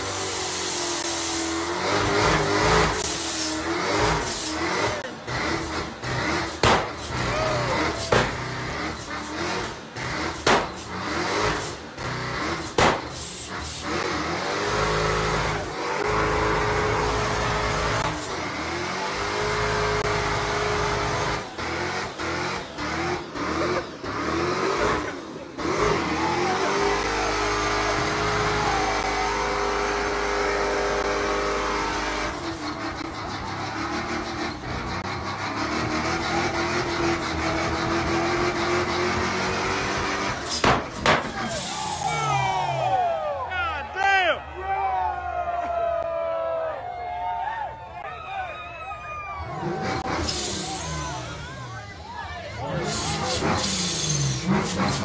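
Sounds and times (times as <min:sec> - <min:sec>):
car engines revving: 0:00.0 - 0:55.0
sharp cracks: 0:06.5 - 0:07.2, 0:08.1 - 0:08.5, 0:10.3 - 0:10.9, 0:12.6 - 0:13.4, 0:40.4 - 0:42.1.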